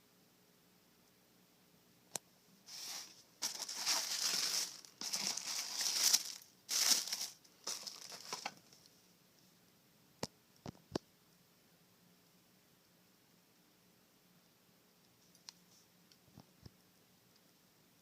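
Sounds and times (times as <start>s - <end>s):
paper packaging crinkling: 2.7s - 8.9s.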